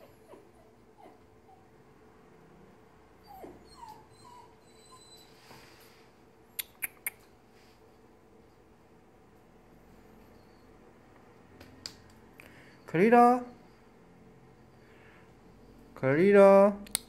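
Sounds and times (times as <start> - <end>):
dog whimpering: 0.0 - 1.8, 3.2 - 5.5.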